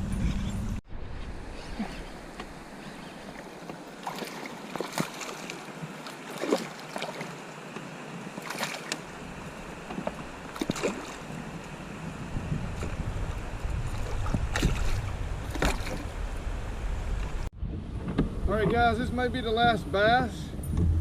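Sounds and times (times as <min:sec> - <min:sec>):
wind and water wash: 0:00.0 - 0:21.0
water splashes: 0:01.2 - 0:17.5.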